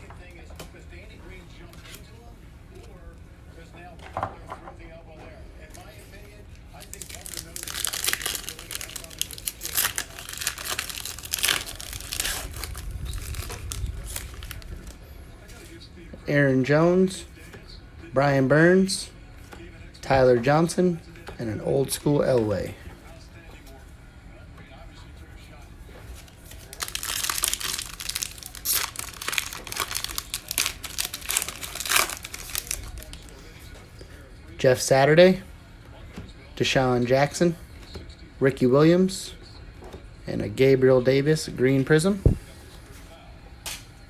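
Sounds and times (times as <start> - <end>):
plastic wrapper crinkling and tearing: 6.6 - 15.0, 26.1 - 33.4.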